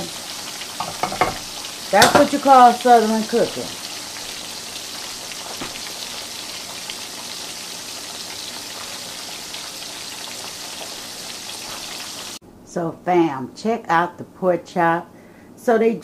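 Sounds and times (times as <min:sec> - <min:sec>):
meat frying in hot oil: 0:00.0 - 0:12.4.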